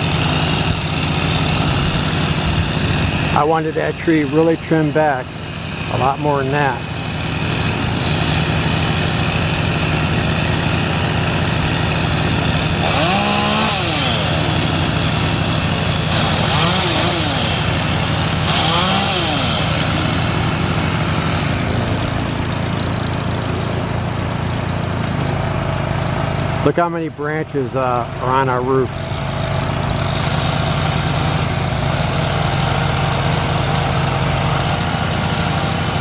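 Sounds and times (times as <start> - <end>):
chainsaw revving: 0.0 - 36.0.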